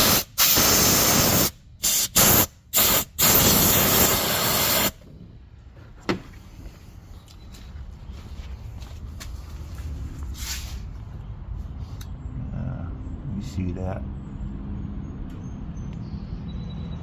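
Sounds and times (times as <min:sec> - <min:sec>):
compressed air hissing through hose: 0:00.0 - 0:05.0.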